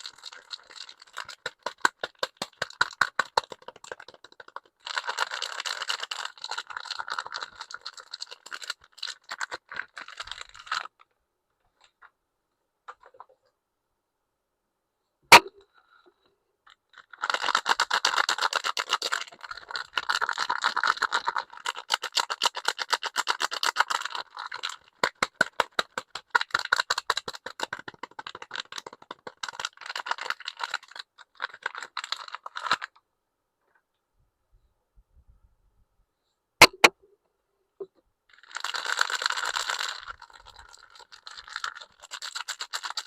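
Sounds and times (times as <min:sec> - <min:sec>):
packaging crackling: 0:00.0 - 0:11.0, 0:16.9 - 0:33.0, 0:38.3 - 0:43.0
sharp click: 0:36.6 - 0:36.9.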